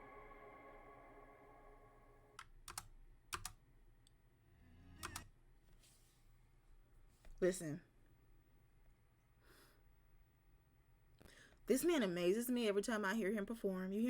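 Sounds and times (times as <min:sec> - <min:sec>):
sustained music chord: 0:00.0 - 0:02.2
computer keys clicking: 0:02.4 - 0:03.6, 0:05.0 - 0:05.3.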